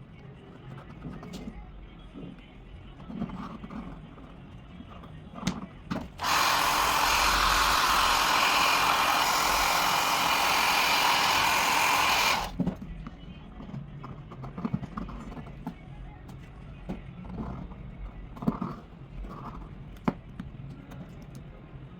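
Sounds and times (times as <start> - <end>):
hair dryer blowing: 6.2 - 12.6.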